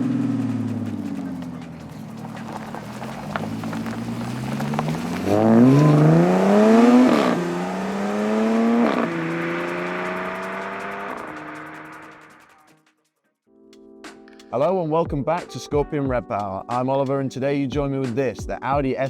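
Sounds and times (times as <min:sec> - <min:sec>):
car engine accelerating with upshifts: 0:00.0 - 0:12.5.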